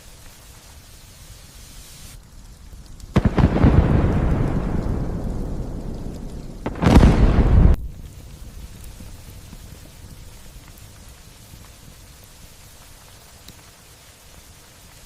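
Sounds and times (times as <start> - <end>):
light steady rain: 0.0 - 15.0
thunderclap rumbling: 2.2 - 10.6.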